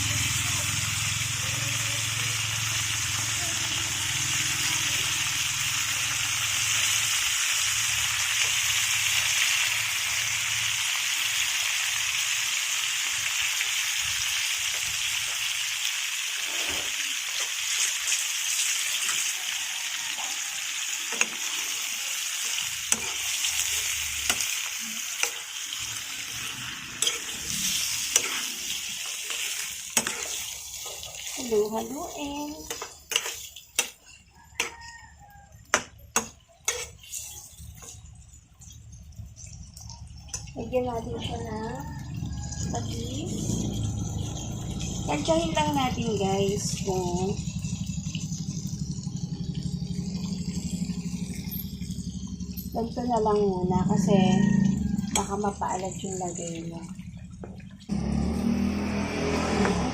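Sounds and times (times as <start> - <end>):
chicken sizzling in a frying pan: 0.0 - 53.2, 54.0 - 56.8, 57.8 - 59.9
utensil scraping a pan: 21.2 - 34.8, 35.7 - 38.0.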